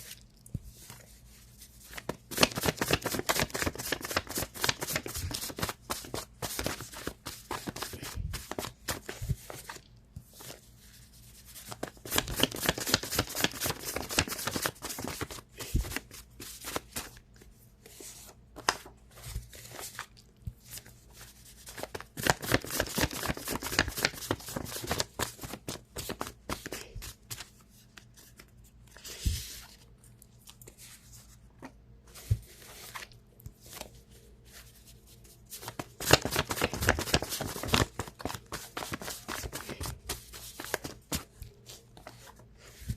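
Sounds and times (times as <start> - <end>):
cards being shuffled: 1.8 - 10.6, 11.4 - 17.2, 17.9 - 29.8, 35.6 - 42.9.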